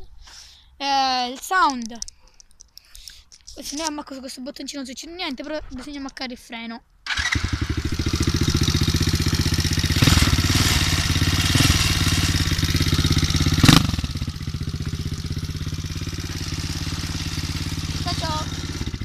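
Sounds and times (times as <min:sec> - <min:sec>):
motorbike engine with throttle blips: 0:07.1 - 0:19.0.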